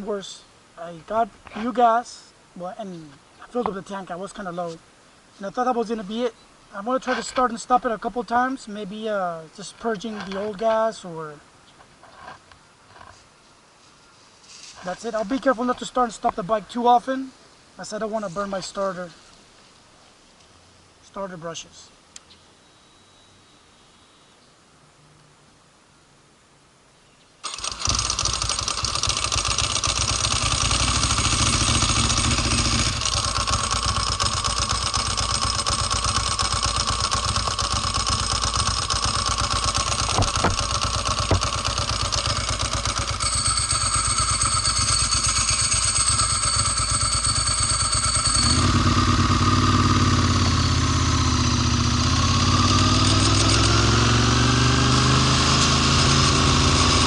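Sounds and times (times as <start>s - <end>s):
motorcycle engine running: 27.5s - 57.0s.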